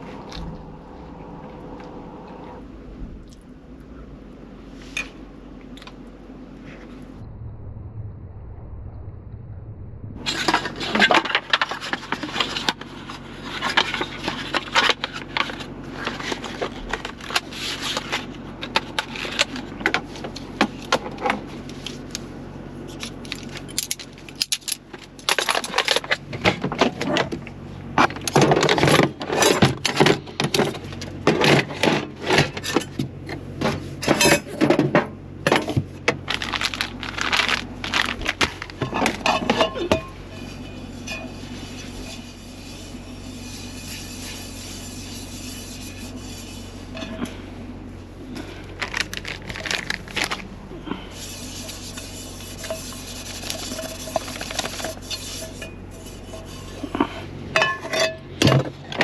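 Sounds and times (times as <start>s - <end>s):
steady low hum: 0.0s - 59.0s
dishes and utensils clattering: 38.8s - 41.3s, 53.5s - 58.7s.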